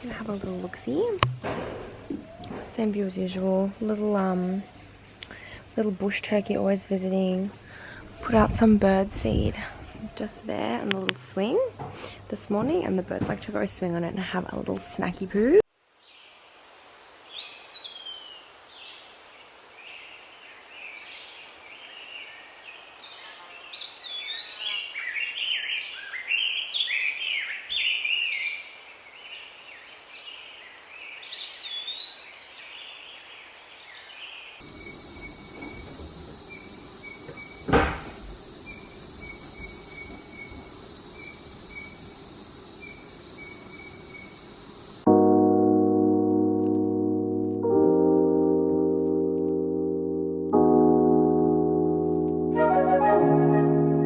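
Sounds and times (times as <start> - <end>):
wild birds chirping: 0.0 - 9.0, 16.0 - 45.1
sharp knock: 1.2 - 2.0.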